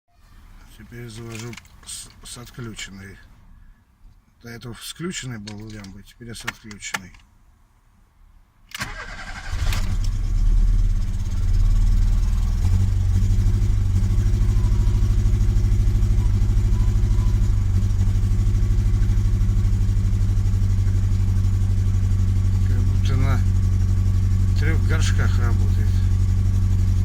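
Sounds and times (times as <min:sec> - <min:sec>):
petrol engine running roughly: 0:08.9 - 0:27.0.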